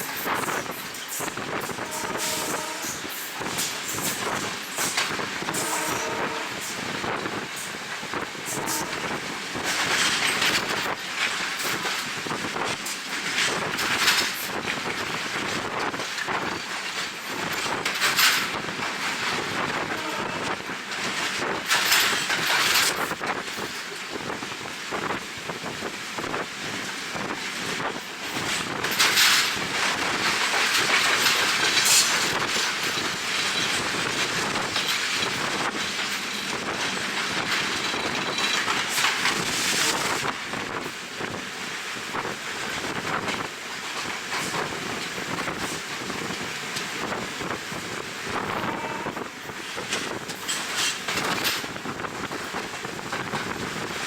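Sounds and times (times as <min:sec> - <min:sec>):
train wheels clattering on rails: 0:00.0 - 0:54.0
wind on microphone: 0:44.3 - 0:50.4.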